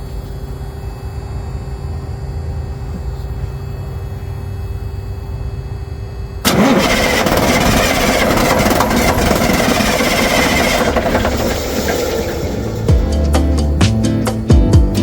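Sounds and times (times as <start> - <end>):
diesel engine starting and running: 6.4 - 15.0.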